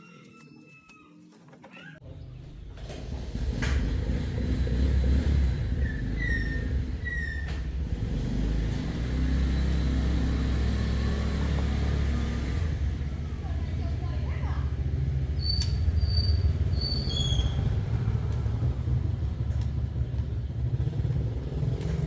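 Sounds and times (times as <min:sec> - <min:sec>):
motorcycle engine running: 0:07.8 - 0:22.0.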